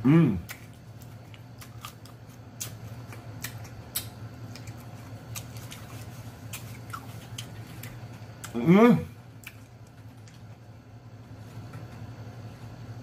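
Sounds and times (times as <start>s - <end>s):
steady low hum: 0.0s - 13.0s
chewing with mouth clicks: 0.4s - 8.6s, 9.3s - 10.7s.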